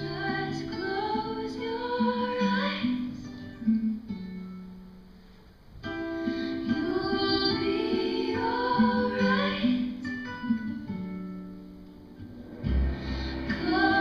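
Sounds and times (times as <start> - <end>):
woman singing slow melody: 0.0 - 3.3, 6.5 - 10.0, 13.4 - 14.0.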